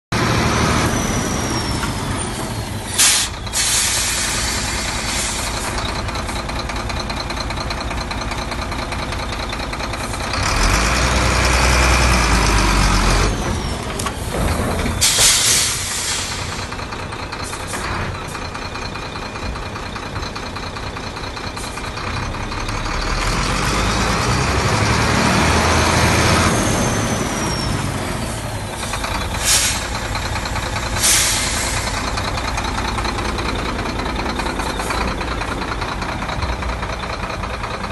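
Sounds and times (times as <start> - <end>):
truck diesel engine running: 0.1 - 37.9
air brake hisses: 2.8 - 5.8, 15.0 - 16.7, 29.3 - 30.2, 30.9 - 32.2
engine whine: 22.0 - 37.9.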